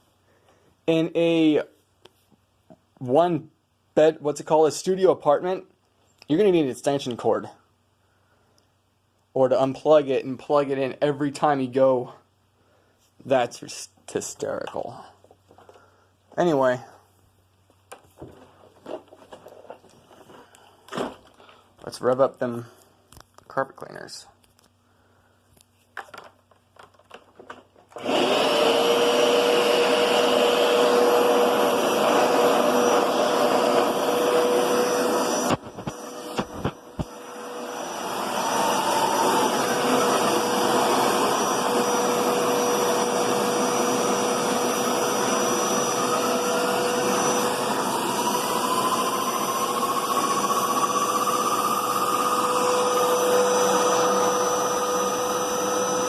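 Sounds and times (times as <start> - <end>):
carpet cleaner motor whine: 27.9 - 56.0.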